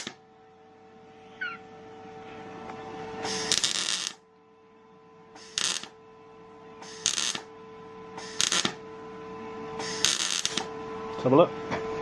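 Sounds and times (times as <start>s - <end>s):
electric welder arc bursts: 0.0s - 0.2s, 3.2s - 4.2s, 5.4s - 6.0s, 6.8s - 7.5s, 8.2s - 8.8s, 9.8s - 10.7s
steady hum: 0.0s - 12.0s.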